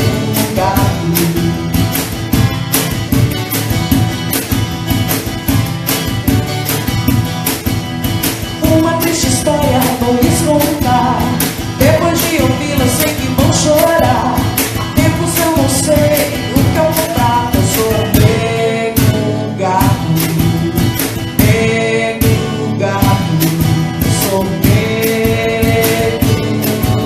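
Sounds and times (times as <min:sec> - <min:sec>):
person singing: 0:00.0 - 0:02.2, 0:08.6 - 0:27.0
band playing a song: 0:00.0 - 0:27.0.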